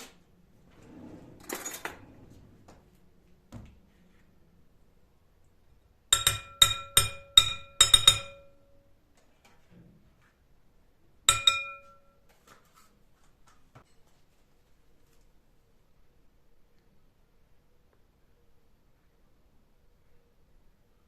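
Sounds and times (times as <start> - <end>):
glassware clinking: 6.2 - 8.6, 11.3 - 12.1.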